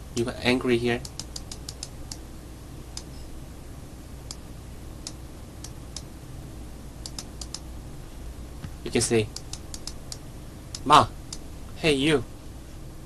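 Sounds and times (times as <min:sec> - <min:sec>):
faint low hum: 0:00.0 - 0:13.0
computer keys clicking: 0:01.0 - 0:02.2, 0:07.0 - 0:07.6, 0:09.3 - 0:11.4.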